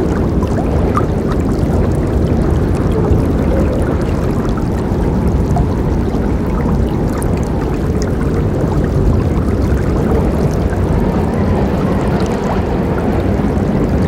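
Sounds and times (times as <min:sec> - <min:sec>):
river rushing with splashes: 0:00.0 - 0:14.0.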